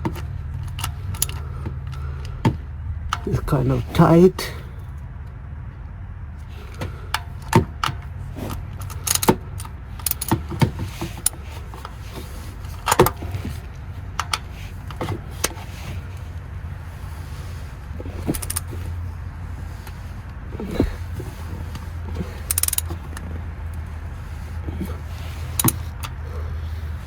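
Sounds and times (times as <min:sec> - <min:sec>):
steady low hum: 0:00.0 - 0:27.0
metal tools clicking and clinking: 0:07.1 - 0:12.0, 0:21.7 - 0:23.3.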